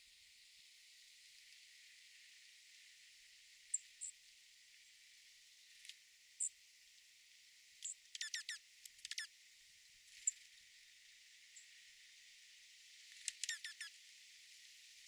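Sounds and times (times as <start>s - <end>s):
small birds calling: 8.2s - 9.3s, 13.3s - 13.9s.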